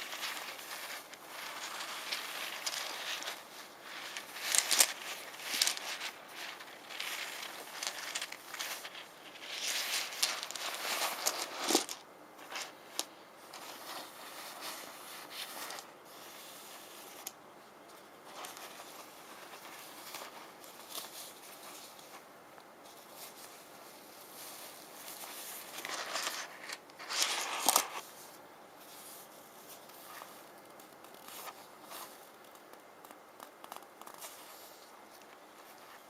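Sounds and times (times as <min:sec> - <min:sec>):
stones rustling and clicking: 0:00.0 - 0:15.9, 0:25.1 - 0:28.0.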